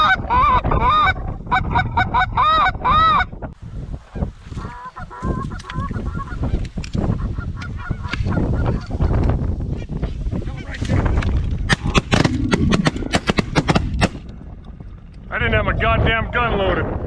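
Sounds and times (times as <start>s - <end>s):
geese honking: 0.0s - 3.3s, 4.2s - 9.2s
wind rumble on microphone: 0.0s - 17.0s.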